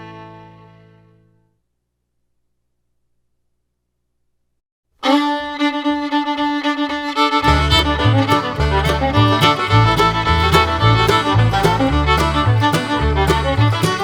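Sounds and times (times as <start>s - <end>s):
fiddle-led tune: 0.0s - 1.4s, 5.0s - 14.0s
bass line: 7.4s - 14.0s
steady beat: 7.5s - 14.0s.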